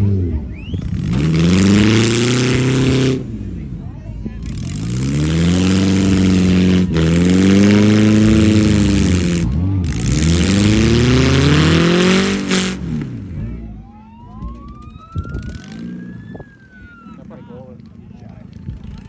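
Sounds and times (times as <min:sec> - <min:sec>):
engine revving with rasping exhaust: 0:00.0 - 0:19.0.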